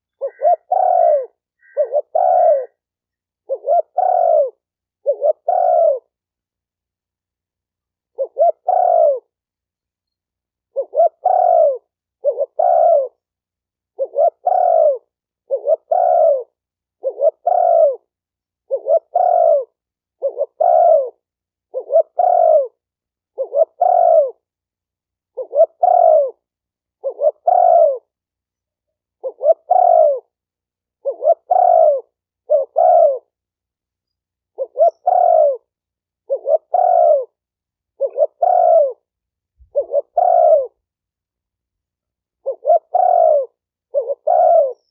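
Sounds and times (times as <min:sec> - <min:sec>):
dove cooing: 0:00.0 - 0:02.8, 0:03.4 - 0:06.2, 0:08.1 - 0:09.4, 0:10.7 - 0:13.2, 0:13.9 - 0:24.5, 0:25.3 - 0:28.2, 0:29.2 - 0:30.4, 0:31.0 - 0:33.4, 0:34.5 - 0:40.9, 0:42.3 - 0:44.9.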